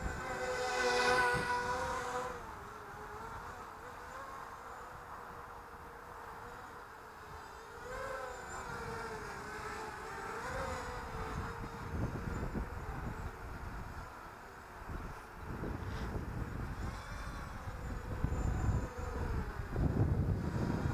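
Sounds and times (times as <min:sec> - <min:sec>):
wind on microphone: 0:00.0 - 0:03.5, 0:08.5 - 0:14.1, 0:14.8 - 0:20.9
drone propellers buzzing: 0:00.0 - 0:20.9.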